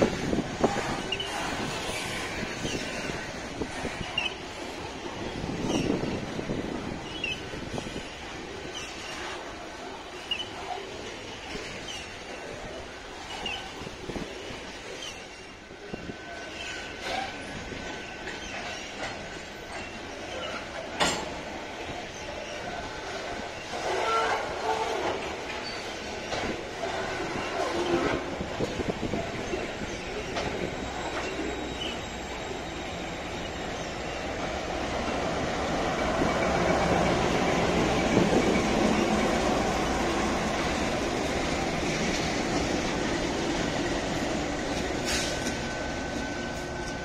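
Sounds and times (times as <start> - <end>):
diesel locomotive rumble: 0.0 - 47.0
train wheel squeal: 0.0 - 47.0
wheels clacking over rail joints: 16.4 - 47.0.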